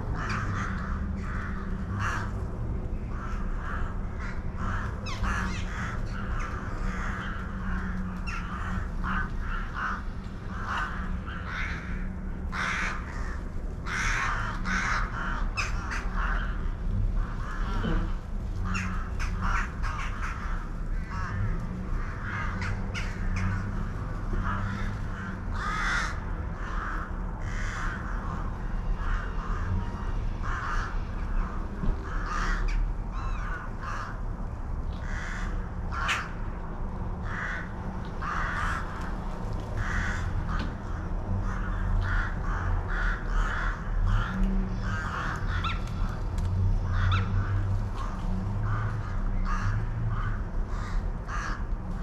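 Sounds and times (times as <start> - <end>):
steady low rumble: 0.0 - 52.0
birds calling: 2.9 - 16.6, 17.2 - 34.2.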